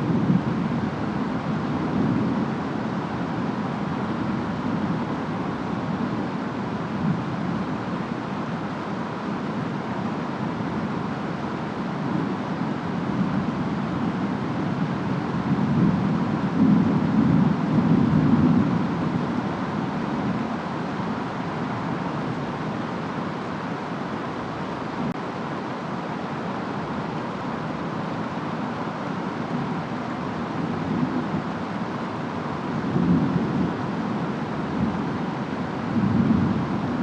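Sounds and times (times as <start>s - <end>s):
steady rain: 0.0s - 37.0s
wind: 0.0s - 37.0s
distant thunder rumble: 30.6s - 37.0s.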